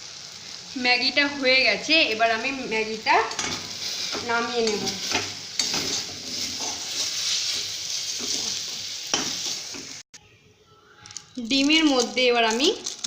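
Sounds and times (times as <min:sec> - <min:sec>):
noodles sizzling in a pan: 0:00.0 - 0:10.1, 0:11.1 - 0:13.0
spatula scraping and knocking: 0:04.2 - 0:10.0.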